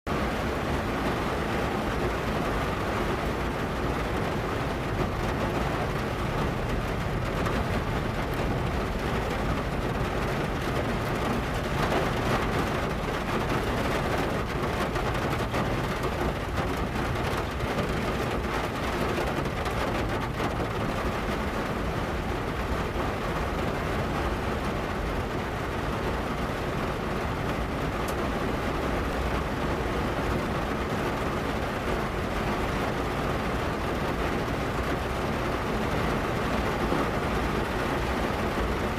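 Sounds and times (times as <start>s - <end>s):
rain on a metal car hood: 0.1s - 38.9s.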